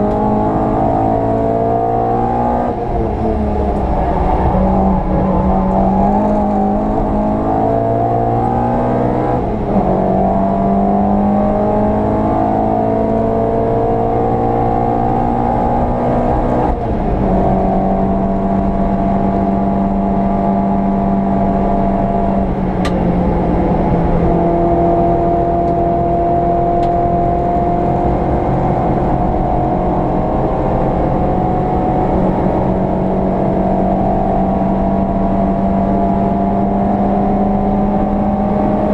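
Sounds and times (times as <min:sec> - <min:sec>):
car engine revving through gears: 0:00.0 - 0:38.9.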